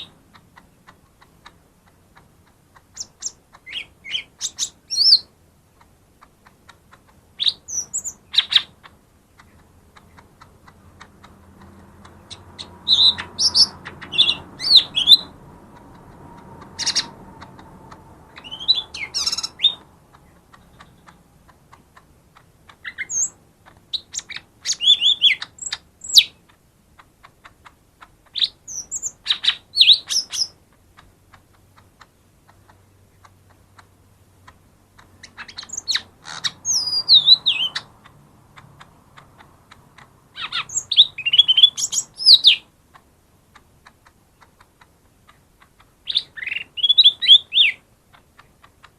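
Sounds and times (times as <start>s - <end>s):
bird singing high whistled notes: 12.8s - 15.3s, 18.4s - 19.8s, 36.6s - 37.8s, 40.4s - 42.6s, 46.1s - 47.8s.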